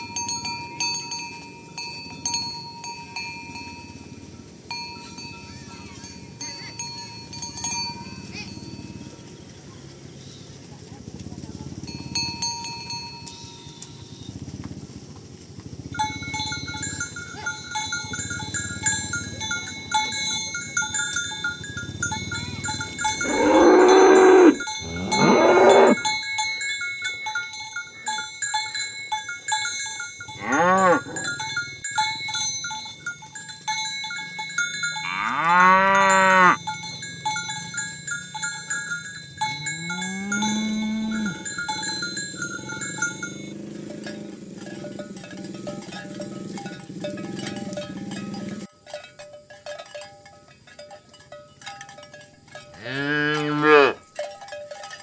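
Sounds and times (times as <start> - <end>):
cow bells jingling: 0.0 - 55.0
cattle mooing: 23.2 - 26.0, 30.4 - 31.3, 35.0 - 36.6, 39.5 - 45.0, 52.8 - 54.0.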